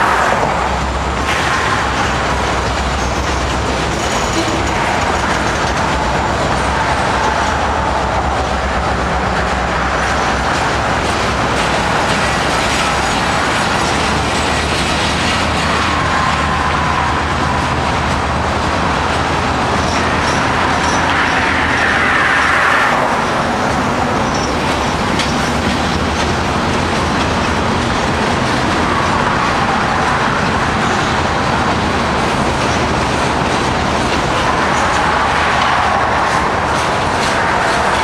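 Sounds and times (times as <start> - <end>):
train wheels clattering over rails: 0.0 - 38.0
train wheels squealing: 1.8 - 8.7, 19.6 - 26.4.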